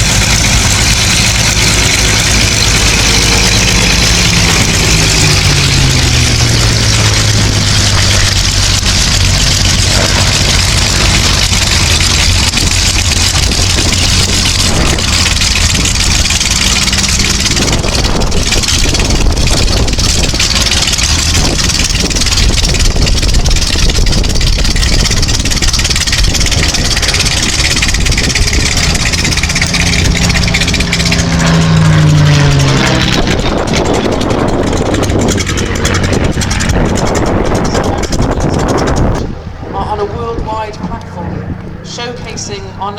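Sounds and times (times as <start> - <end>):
aircraft piston engine passing: 0.0 - 42.9.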